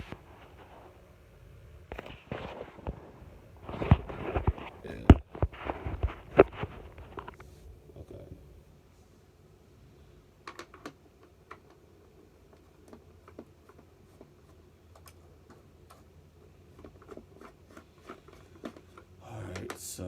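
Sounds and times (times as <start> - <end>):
faint low hum: 0.0 - 20.0
plastic parts and screws clicking: 10.4 - 11.8.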